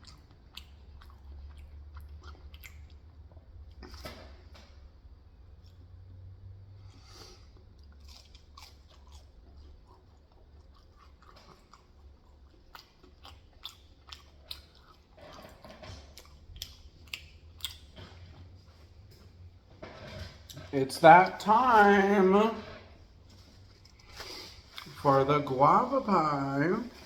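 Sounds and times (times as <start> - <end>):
wet chewing and biting: 0.0 - 4.4, 7.3 - 19.4
low steady hum: 0.0 - 27.0.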